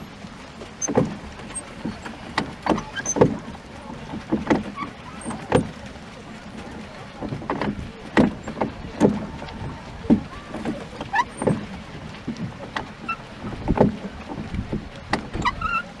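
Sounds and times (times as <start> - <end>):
oars and hull knocking: 0.0 - 16.0
short squeak: 0.8 - 3.5, 4.6 - 5.7, 10.4 - 16.0.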